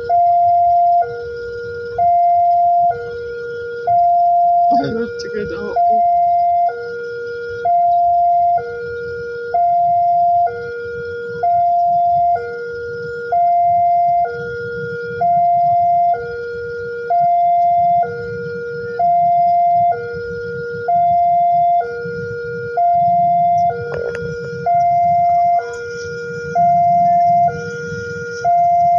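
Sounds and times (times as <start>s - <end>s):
two-tone warning siren: 0.0s - 28.9s.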